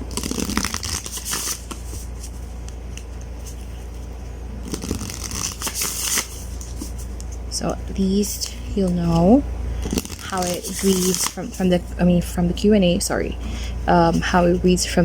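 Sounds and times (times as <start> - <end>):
low steady hum: 0.0 - 15.0
cards sliding and flicking: 0.1 - 3.8, 4.6 - 7.3, 9.8 - 11.4.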